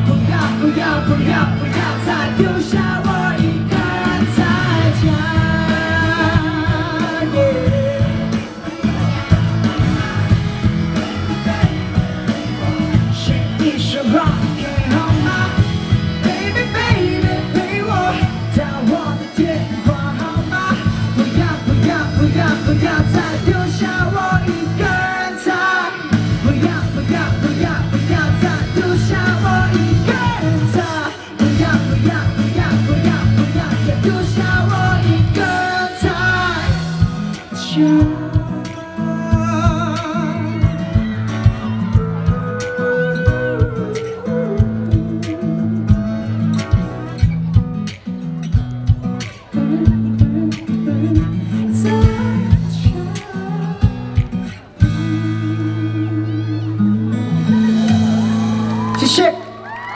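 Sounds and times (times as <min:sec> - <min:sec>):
person singing: 0:00.0 - 0:48.1, 0:49.2 - 0:59.9
live pop-rock band: 0:00.0 - 0:59.9.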